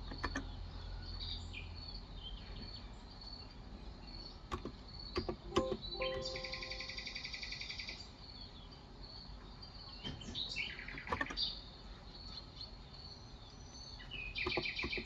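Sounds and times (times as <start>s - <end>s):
keyboard keystroke clicks: 4.5s - 6.9s.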